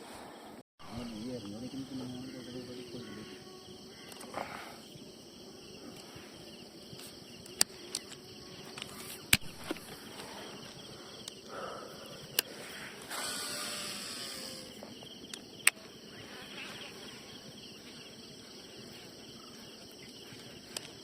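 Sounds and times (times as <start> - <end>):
insects chirring: 0.8 - 21.0.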